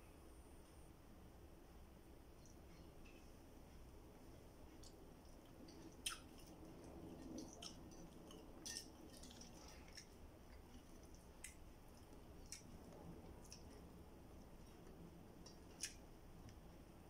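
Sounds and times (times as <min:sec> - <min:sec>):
person chewing wetly: 0:04.3 - 0:16.6
lip smacks and clicks: 0:04.7 - 0:16.7.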